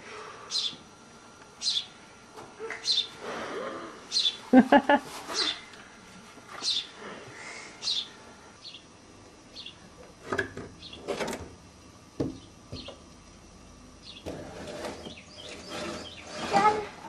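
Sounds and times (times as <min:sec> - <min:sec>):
small birds chirping: 0:00.4 - 0:00.8, 0:01.6 - 0:02.0, 0:02.6 - 0:03.2, 0:04.1 - 0:04.5, 0:06.6 - 0:09.9, 0:10.8 - 0:11.1, 0:12.2 - 0:13.0, 0:14.0 - 0:16.7
sharp knocks and bumps: 0:12.2 - 0:13.0.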